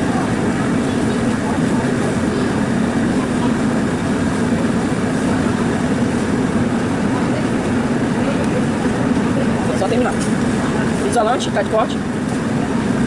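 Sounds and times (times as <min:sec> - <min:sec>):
loud mechanical drone: 0:00.0 - 0:13.0.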